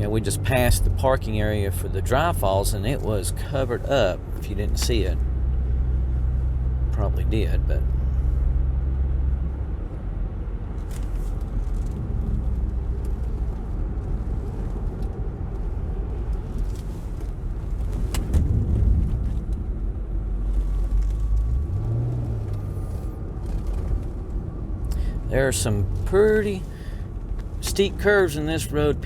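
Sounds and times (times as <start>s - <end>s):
car engine rumble: 0.0s - 29.0s
road noise inside car: 0.0s - 29.0s.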